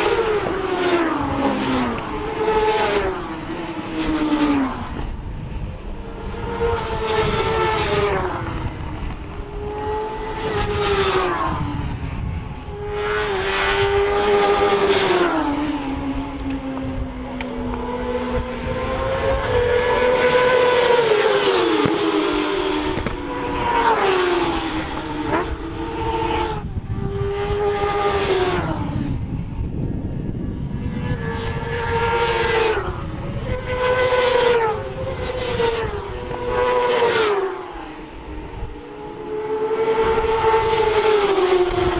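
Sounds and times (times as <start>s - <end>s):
racing motorcycles accelerating: 0.0s - 41.9s.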